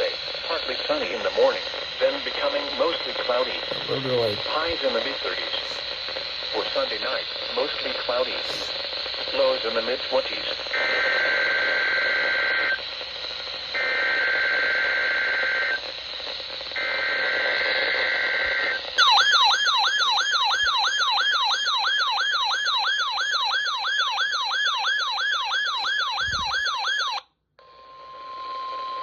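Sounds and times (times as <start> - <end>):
warbling alarm tone: 19.0 - 20.6, 25.9 - 27.2.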